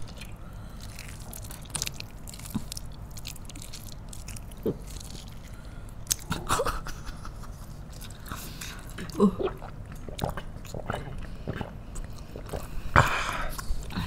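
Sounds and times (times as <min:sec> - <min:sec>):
biting and chewing food: 0:00.0 - 0:06.6
food crackles and mouth clicks: 0:00.0 - 0:14.0.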